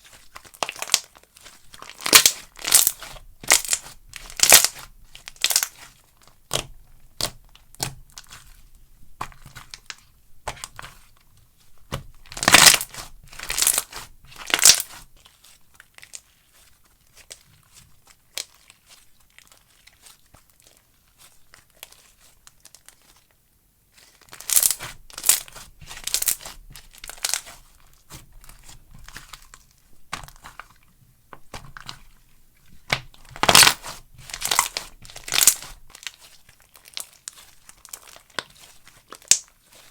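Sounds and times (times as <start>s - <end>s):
slime crackling and popping: 0.3s - 8.5s, 11.9s - 20.8s, 24.2s - 30.8s, 32.7s - 39.9s.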